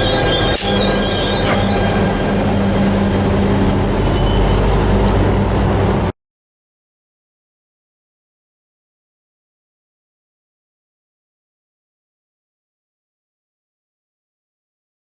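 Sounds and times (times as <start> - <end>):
high-pitched wheel squeal: 0.0 - 5.1
train wheels rumbling on rail: 0.0 - 6.1.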